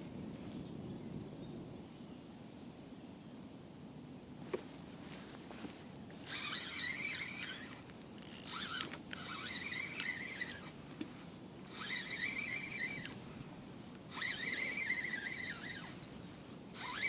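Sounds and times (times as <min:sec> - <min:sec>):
fishing reel whirring: 0:06.1 - 0:17.0.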